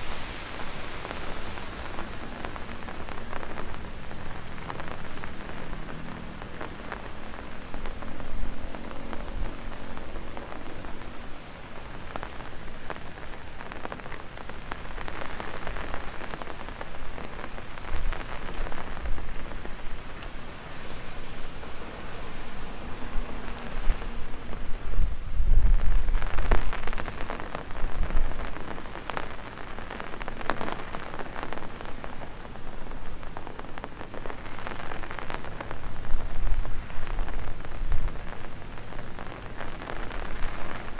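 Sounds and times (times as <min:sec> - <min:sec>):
heavy rain on an umbrella: 0:00.0 - 0:40.9.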